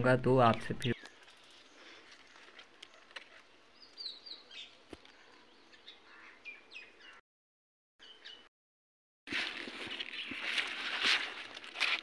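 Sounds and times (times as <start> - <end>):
faint bird chirps: 0.9 - 7.2.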